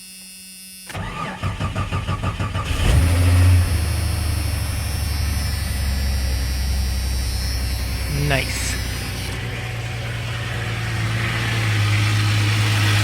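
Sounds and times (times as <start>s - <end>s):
engine starter cranking: 0.9s - 7.5s
car engine revving and idling: 1.0s - 13.0s.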